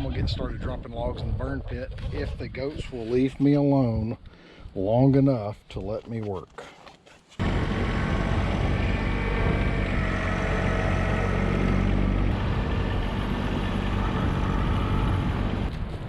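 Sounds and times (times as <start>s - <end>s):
tractor engine running: 7.4s - 16.0s.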